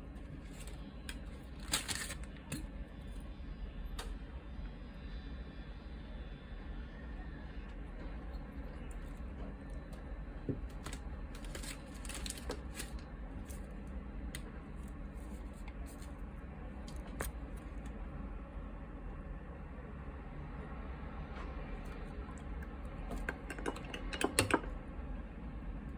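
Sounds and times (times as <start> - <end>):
steady low hum: 0.0 - 25.9
utensils and dishes clicking: 23.1 - 24.7.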